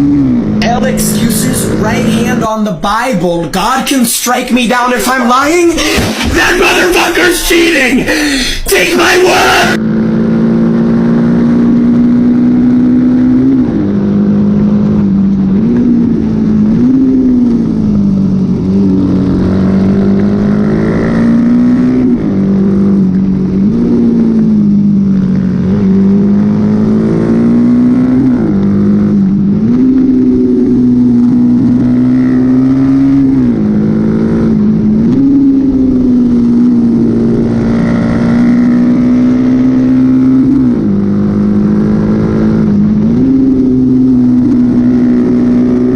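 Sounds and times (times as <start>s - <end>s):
motorcycle engine running hard: 9.3s - 45.9s.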